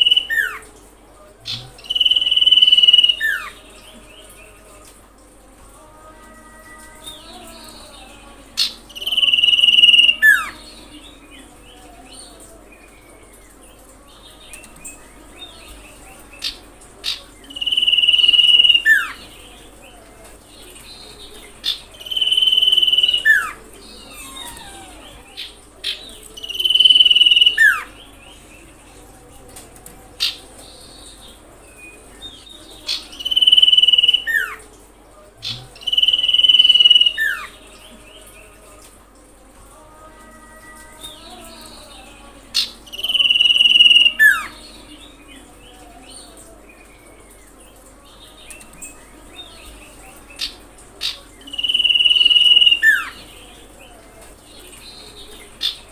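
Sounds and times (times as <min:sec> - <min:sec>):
bird whistling call: 0:22.1 - 0:25.3.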